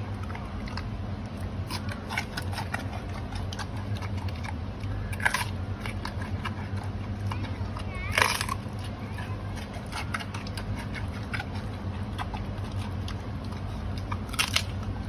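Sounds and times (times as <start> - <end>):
panda chewing bamboo: 0.0 - 15.0
steady low hum: 0.0 - 15.0
bamboo cracking: 4.9 - 6.4, 8.1 - 8.8, 13.9 - 15.0.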